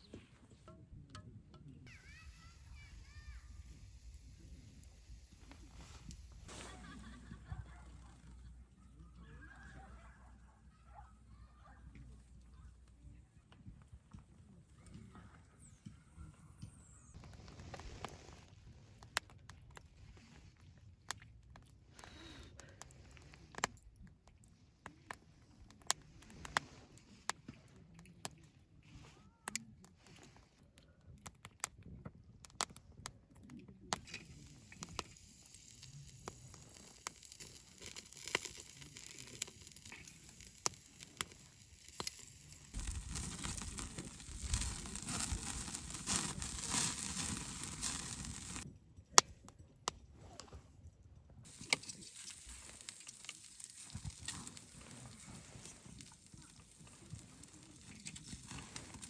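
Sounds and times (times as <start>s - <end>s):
campfire crackling and popping: 1.9s - 18.4s, 33.4s - 48.7s, 51.5s - 59.0s.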